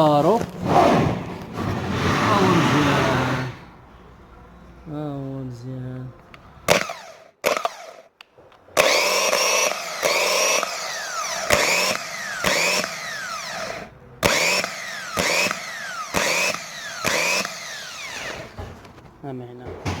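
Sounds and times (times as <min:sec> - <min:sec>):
starter motor whining: 0:00.6 - 0:03.7, 0:08.8 - 0:19.0.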